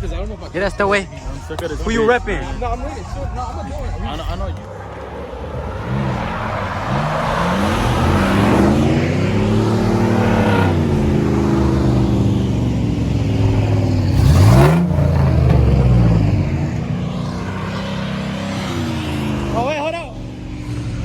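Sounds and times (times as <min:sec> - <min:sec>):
vehicle engine revving hard: 0:05.0 - 0:21.0.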